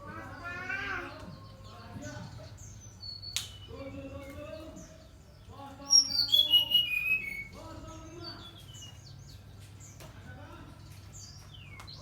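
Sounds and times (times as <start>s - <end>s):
bird singing high notes: 5.9s - 7.6s.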